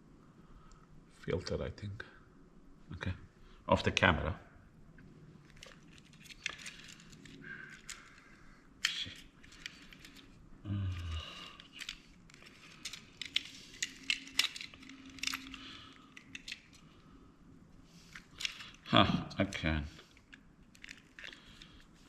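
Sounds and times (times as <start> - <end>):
plastic parts clicking and tapping: 5.5 - 8.2, 11.0 - 16.9, 20.1 - 21.9.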